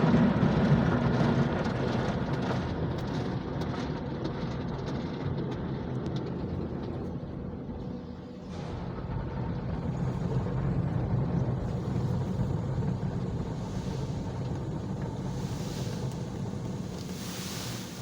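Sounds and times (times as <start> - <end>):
car wash machine hum: 10.1 - 18.0
water spray rushing: 13.3 - 18.0.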